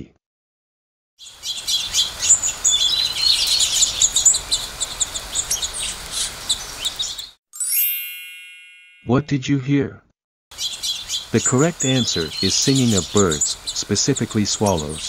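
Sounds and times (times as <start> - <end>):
swallows twittering: 1.2 - 7.3, 10.5 - 15.0
background hiss: 10.6 - 15.0.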